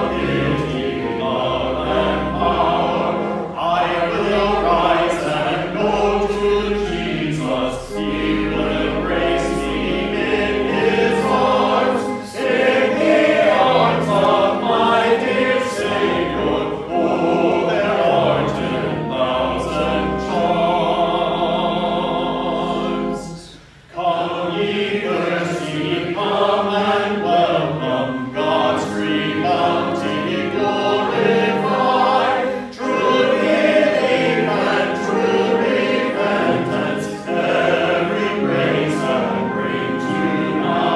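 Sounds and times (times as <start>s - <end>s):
low held notes: 0.0s - 23.8s
congregation singing a hymn: 0.0s - 40.9s.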